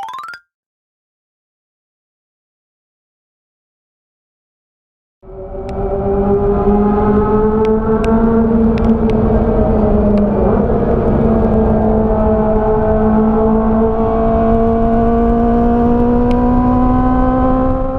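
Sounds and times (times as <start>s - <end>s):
engine running at high revs: 5.3s - 17.9s.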